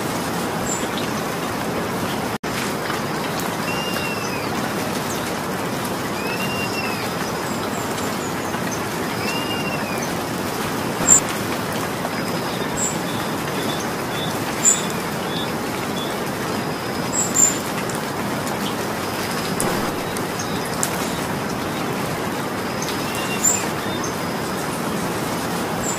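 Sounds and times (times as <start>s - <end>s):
rain falling: 0.0s - 25.9s
bird calling: 3.6s - 4.6s, 6.1s - 11.2s, 19.5s - 21.9s.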